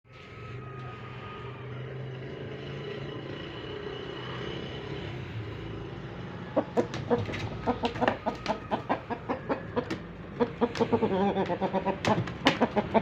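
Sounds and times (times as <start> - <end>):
low mechanical hum: 0.1 - 13.0.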